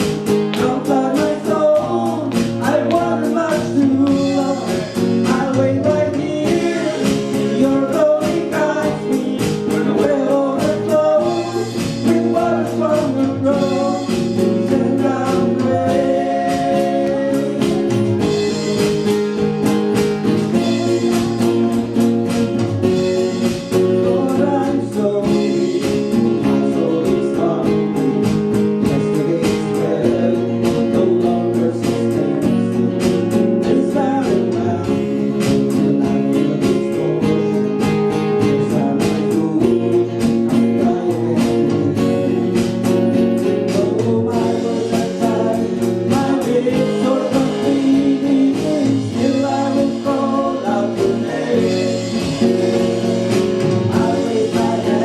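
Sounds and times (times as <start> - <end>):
strummed guitar: 0.0 - 55.0
person singing gospel song: 0.5 - 18.6, 20.4 - 22.0, 23.8 - 37.8, 38.4 - 42.5, 43.4 - 53.0, 53.8 - 55.0.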